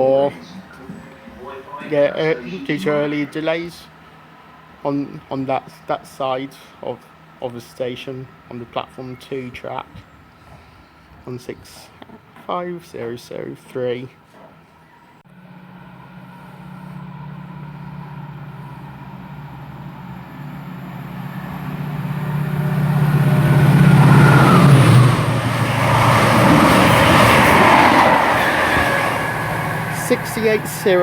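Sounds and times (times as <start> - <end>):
diesel locomotive engine drone: 0.0 - 11.1, 14.8 - 31.0
wheels rushing on rail: 14.6 - 31.0.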